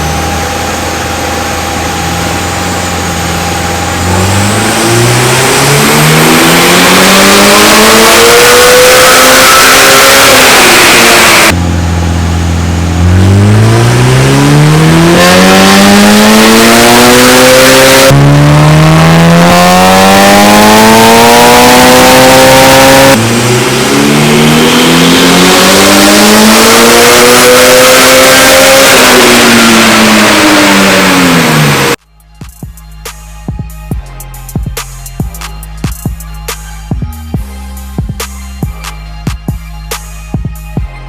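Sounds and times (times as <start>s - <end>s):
car engine accelerating hard: 0.0s - 32.0s.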